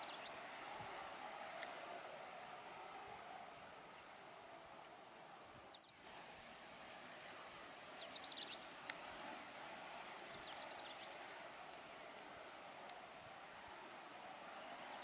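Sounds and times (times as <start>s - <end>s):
small birds chirping: 0.0s - 1.8s, 5.5s - 6.2s, 7.3s - 15.0s.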